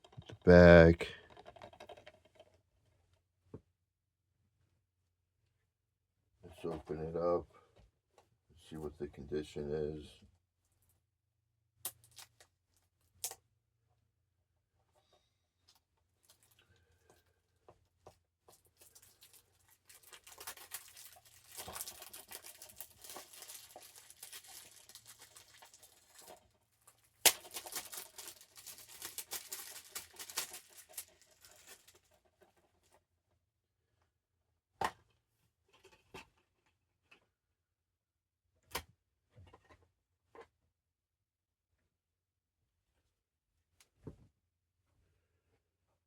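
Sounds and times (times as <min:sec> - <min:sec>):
plastic wrapping crinkling and tearing: 0:18.8 - 0:26.4, 0:27.0 - 0:32.1.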